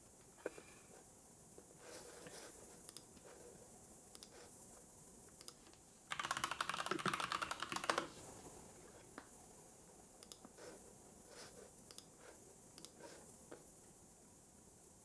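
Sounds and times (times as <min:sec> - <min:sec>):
computer keyboard typing: 0:05.4 - 0:08.3.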